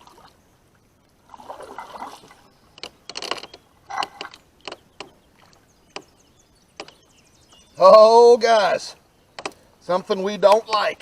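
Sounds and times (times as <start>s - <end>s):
paddle swishing through water: 0.0s - 0.4s, 1.1s - 7.1s.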